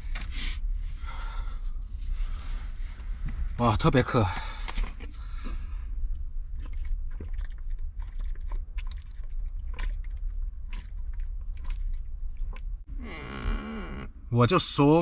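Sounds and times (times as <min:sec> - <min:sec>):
low rumble: 0:00.0 - 0:14.8
person gulping and swallowing: 0:04.4 - 0:13.2.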